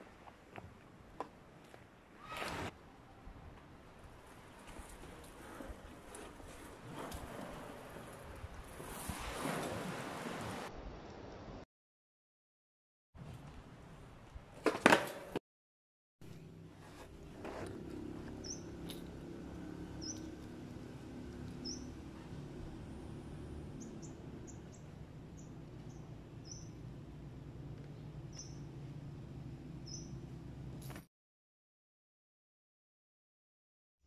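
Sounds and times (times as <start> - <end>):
low outdoor rumble: 16.3 - 30.8
small birds chirping: 18.3 - 18.8, 20.0 - 20.3, 21.6 - 22.0, 23.8 - 26.8, 27.9 - 28.7, 29.8 - 30.2.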